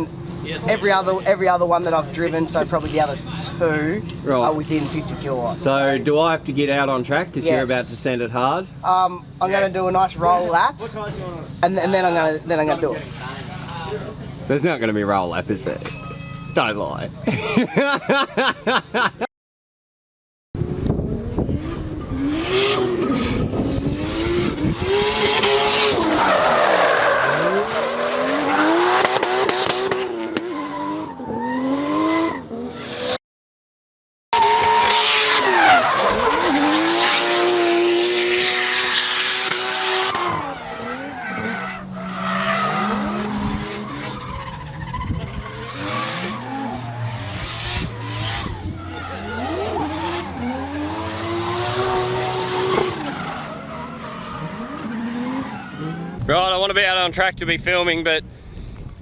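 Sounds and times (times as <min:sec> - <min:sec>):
car engine revving hard: 0:20.6 - 0:33.2, 0:34.4 - 0:56.3.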